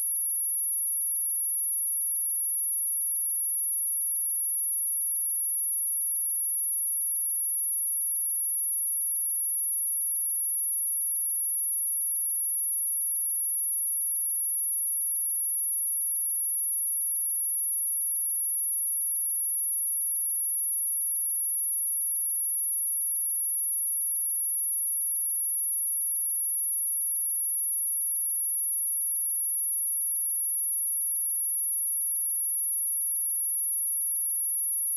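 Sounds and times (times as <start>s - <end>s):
high-pitched sine test tone: 21.9s - 34.9s.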